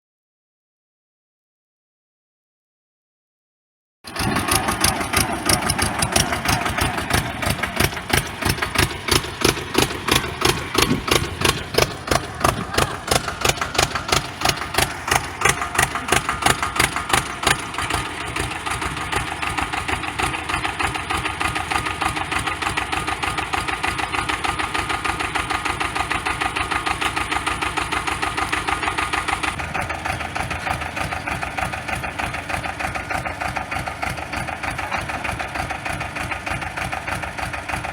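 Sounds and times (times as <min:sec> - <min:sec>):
tractor diesel engine running: 0:04.1 - 0:37.9.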